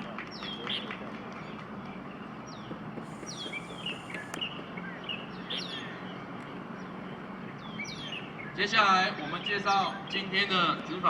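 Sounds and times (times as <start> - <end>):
outdoor background noise: 0.0 - 11.0
birds chirping: 3.0 - 4.6.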